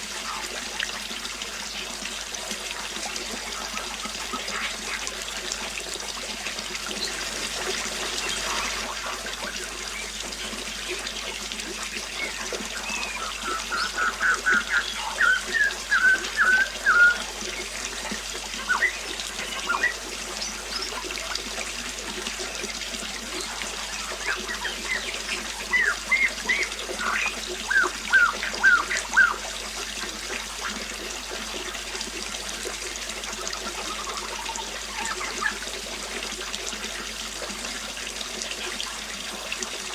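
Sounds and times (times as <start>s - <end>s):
water trickling: 0.0s - 39.9s
songbird chirping: 12.1s - 21.0s, 23.4s - 29.4s.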